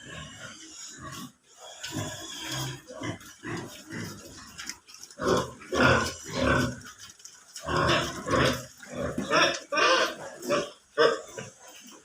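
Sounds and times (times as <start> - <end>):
pigs calling: 0.0 - 12.0.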